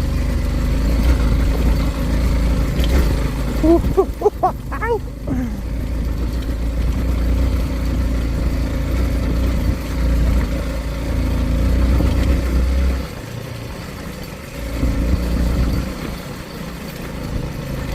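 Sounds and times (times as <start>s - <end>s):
motorcycle engine rumbling: 0.0s - 12.2s.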